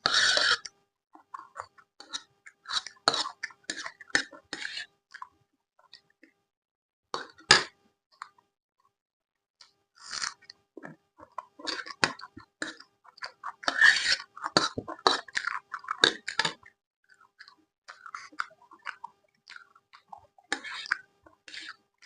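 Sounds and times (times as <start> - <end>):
chewing and crunching food: 0.0 - 6.4, 7.2 - 8.4, 9.6 - 22.0.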